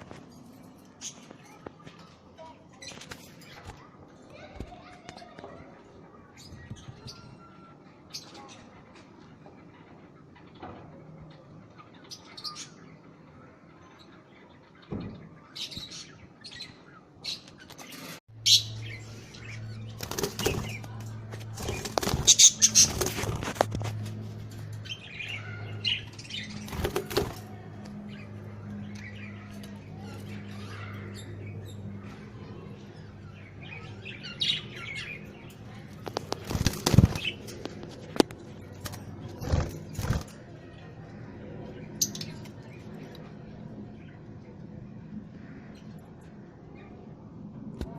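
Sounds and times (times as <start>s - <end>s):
wing flapping and clattering: 19.8s - 24.9s, 26.1s - 28.2s, 35.8s - 40.5s.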